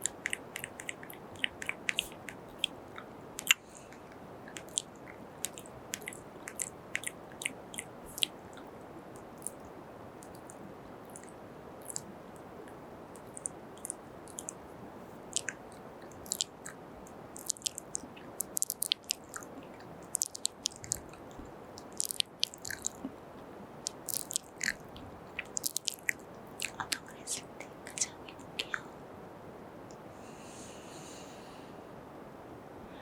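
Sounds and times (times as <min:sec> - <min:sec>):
wet lip-smacking kisses: 0:00.0 - 0:02.8, 0:15.4 - 0:16.8, 0:17.4 - 0:21.2, 0:25.4 - 0:28.8
steady low hiss: 0:00.0 - 0:33.0.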